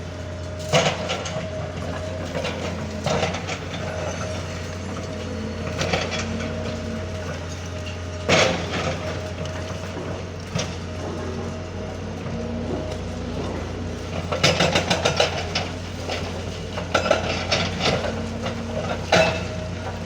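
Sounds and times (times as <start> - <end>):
backhoe engine running: 0.0 - 20.0.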